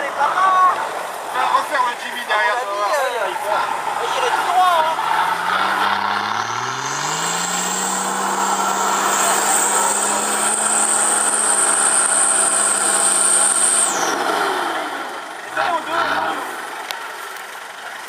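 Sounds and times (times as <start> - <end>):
high whine: 3.4 - 16.8
engine revving high: 3.5 - 16.9.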